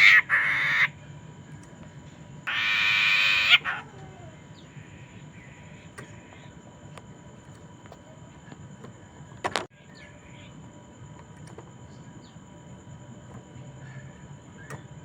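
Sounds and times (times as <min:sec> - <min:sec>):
bird harsh call: 0:00.0 - 0:01.0, 0:02.5 - 0:06.4
faint bird chirps and whistles: 0:09.8 - 0:10.7, 0:13.6 - 0:15.0.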